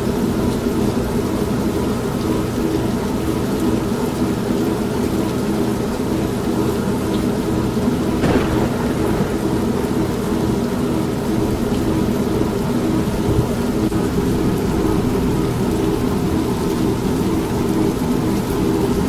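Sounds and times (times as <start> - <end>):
rain: 0.0 - 19.0
thunder: 8.2 - 12.2.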